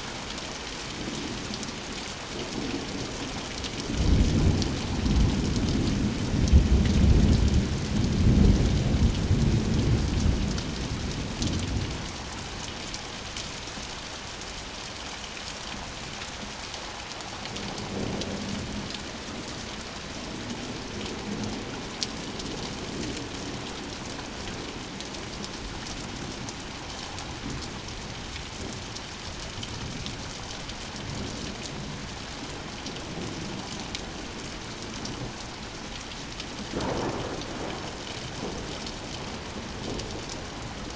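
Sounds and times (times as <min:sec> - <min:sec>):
steady rain falling: 0:00.0 - 0:40.9
thunder rumbling: 0:36.7 - 0:40.9.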